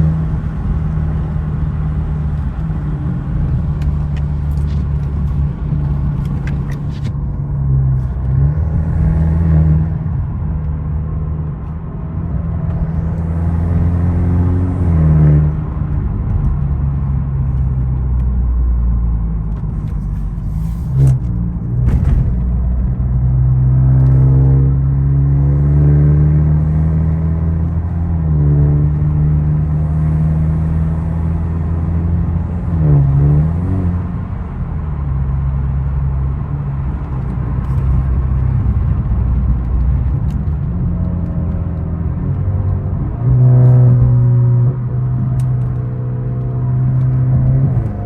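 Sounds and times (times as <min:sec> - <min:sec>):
car engine revving: 0:19.0 - 0:48.0.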